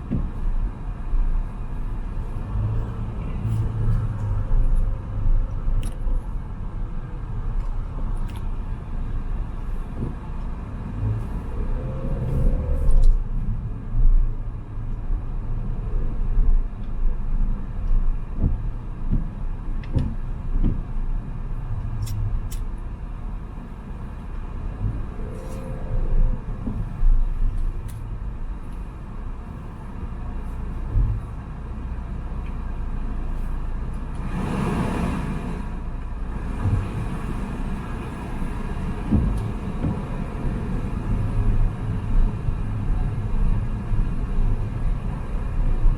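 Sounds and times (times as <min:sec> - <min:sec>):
thumps from road bumps: 0:00.0 - 0:00.8, 0:09.8 - 0:11.4, 0:17.9 - 0:22.8, 0:30.8 - 0:31.4, 0:36.5 - 0:37.2, 0:38.8 - 0:40.7
car engine and tyre rumble: 0:00.0 - 0:45.9
rushing noise: 0:34.1 - 0:42.6.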